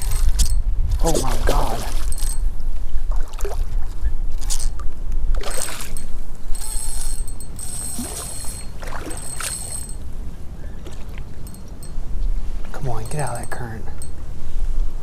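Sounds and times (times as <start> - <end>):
fishing reel drag buzzing: 0.0 - 0.6, 1.8 - 2.5, 4.4 - 10.3
flowing water: 0.0 - 2.4, 3.1 - 14.1.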